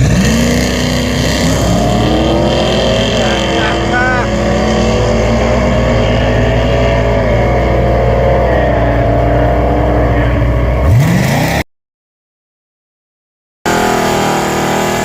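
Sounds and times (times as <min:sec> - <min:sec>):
race car engine revving: 0:00.0 - 0:11.6, 0:13.7 - 0:15.0.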